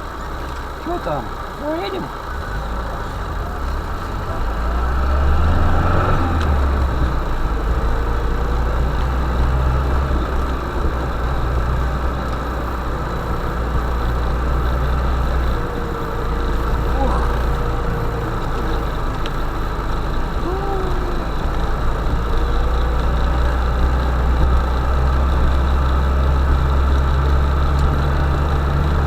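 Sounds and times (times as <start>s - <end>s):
van engine drone: 0.0s - 29.0s.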